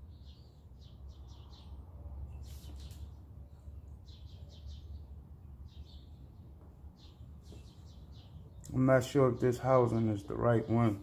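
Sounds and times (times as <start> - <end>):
small bird chirping: 0.0 - 8.8.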